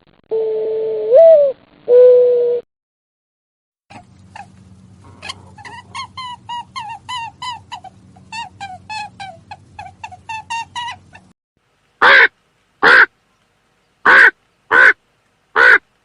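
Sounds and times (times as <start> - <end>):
low steady hum: 3.9 - 16.0
bird calling rapidly: 12.0 - 13.1, 14.0 - 15.0, 15.6 - 15.9.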